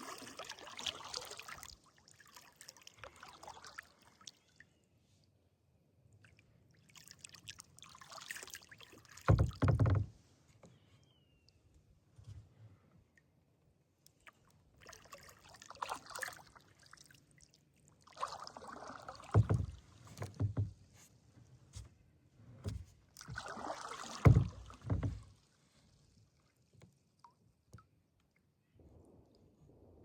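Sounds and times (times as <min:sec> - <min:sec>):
paddle splashing water: 0:00.0 - 0:04.4, 0:06.3 - 0:10.1, 0:14.2 - 0:21.1, 0:22.6 - 0:27.4
paddle knocking kayak: 0:09.3 - 0:10.2, 0:19.1 - 0:20.9, 0:22.6 - 0:25.4.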